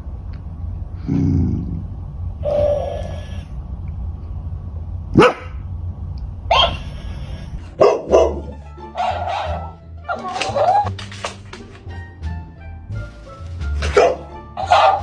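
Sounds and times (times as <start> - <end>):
dog barking: 5.2 - 5.6, 6.5 - 6.9, 7.8 - 10.9, 13.8 - 15.0.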